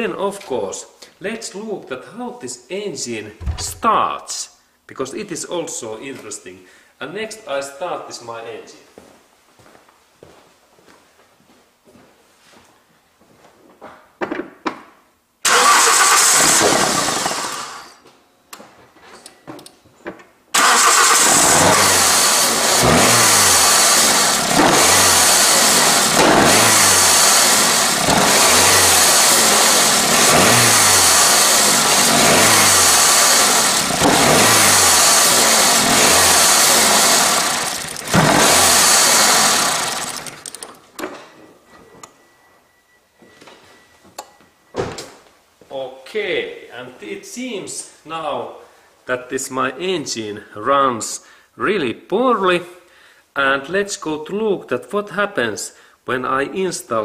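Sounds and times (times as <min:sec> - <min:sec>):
car engine starting and running rough: 0:03.4 - 0:03.8, 0:15.4 - 0:17.9, 0:20.6 - 0:40.7.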